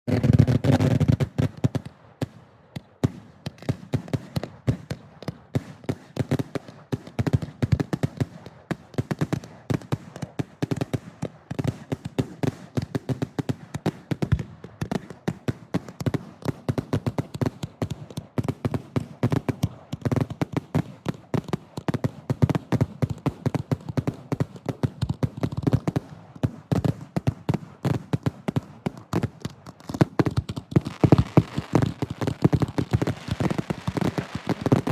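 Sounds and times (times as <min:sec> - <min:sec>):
fireworks bursting: 0:24.0 - 0:34.9.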